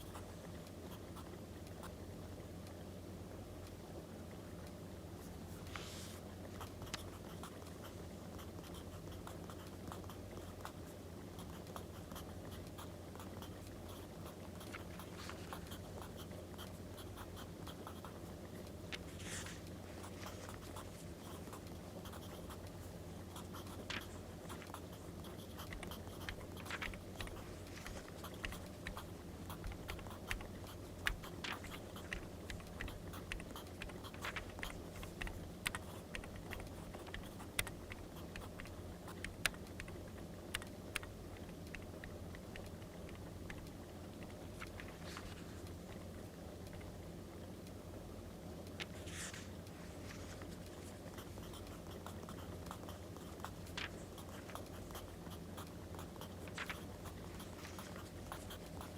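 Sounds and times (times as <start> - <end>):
steady low hum: 0.0 - 58.9
writing on paper: 5.2 - 18.2, 19.0 - 40.0, 50.1 - 58.9.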